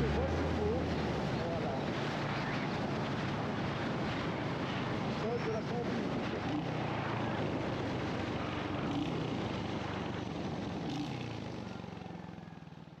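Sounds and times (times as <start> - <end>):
road noise: 0.0 - 12.8.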